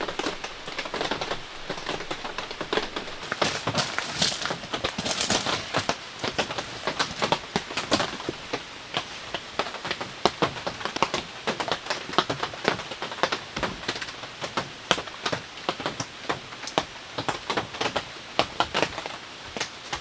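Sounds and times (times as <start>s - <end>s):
heavy rain hissing: 0.0s - 10.3s
raindrops pattering on surface: 0.0s - 20.0s.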